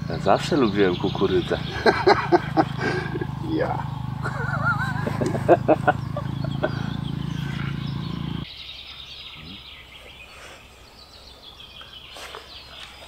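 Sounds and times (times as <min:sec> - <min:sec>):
steady low hum: 0:00.0 - 0:08.4
small birds chirping: 0:00.0 - 0:13.0.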